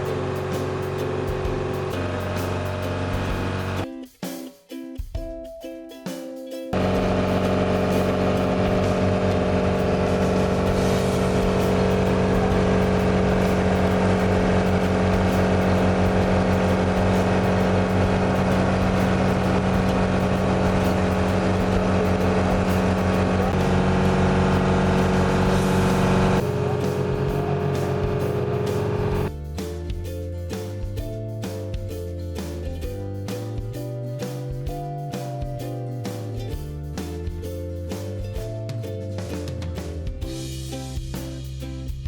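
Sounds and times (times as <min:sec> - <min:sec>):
motor engine running: 0:00.0 - 0:03.8, 0:06.8 - 0:30.1.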